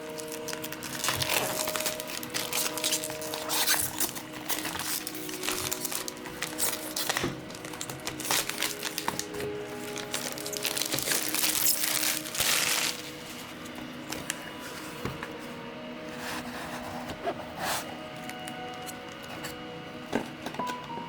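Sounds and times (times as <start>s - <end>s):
packaging crinkling and rustling: 0.0s - 16.5s
background music: 0.0s - 21.0s.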